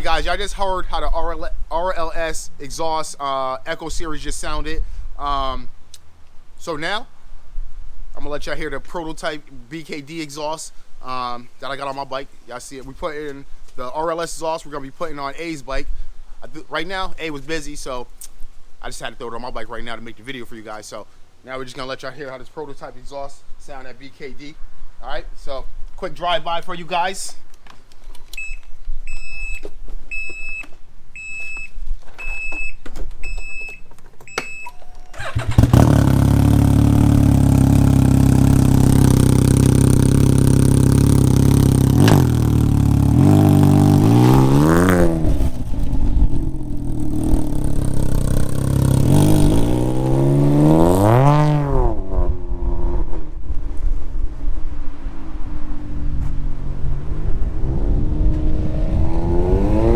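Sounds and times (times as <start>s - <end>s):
motorcycle engine revving: 35.2s - 53.5s, 54.3s - 59.9s.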